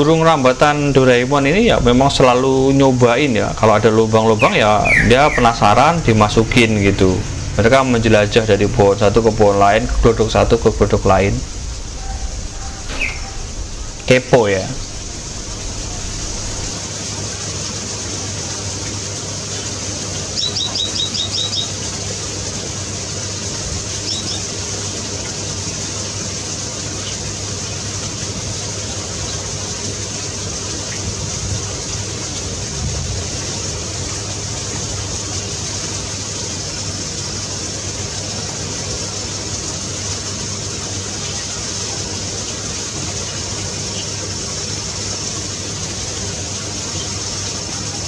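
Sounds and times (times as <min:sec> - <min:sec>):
low hum: 0:00.0 - 0:17.6
steady hiss: 0:00.0 - 0:48.0
small bird trilling: 0:04.4 - 0:05.7, 0:11.9 - 0:14.0.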